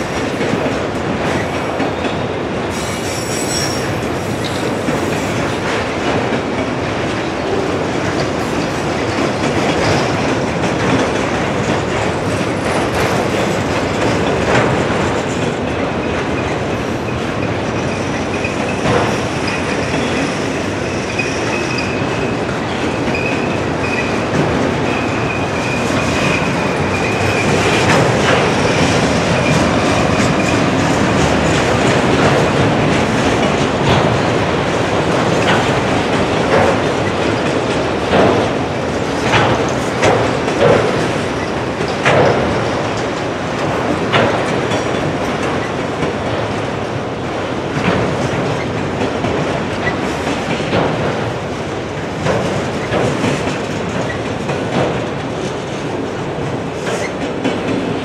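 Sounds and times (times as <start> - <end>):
train wheels rumbling on rail: 0.0 - 58.0
high-pitched wheel squeal: 2.8 - 4.6.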